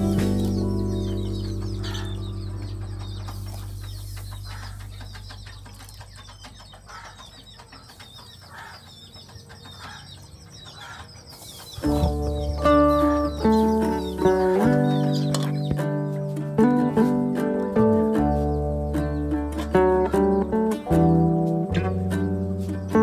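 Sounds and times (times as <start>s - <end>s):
low droning music tone: 0.0s - 6.6s, 11.8s - 23.0s
birds chirping: 0.0s - 23.0s.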